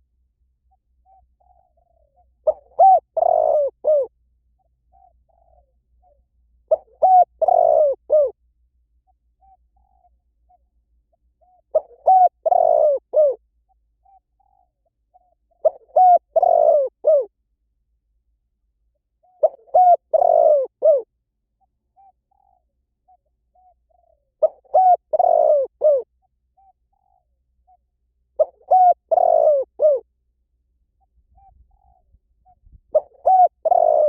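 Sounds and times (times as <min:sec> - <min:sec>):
dove cooing: 0:00.7 - 0:08.4, 0:09.4 - 0:10.7, 0:11.4 - 0:13.4, 0:14.0 - 0:17.3, 0:19.2 - 0:21.1, 0:22.0 - 0:27.8, 0:28.4 - 0:30.1, 0:31.4 - 0:34.0.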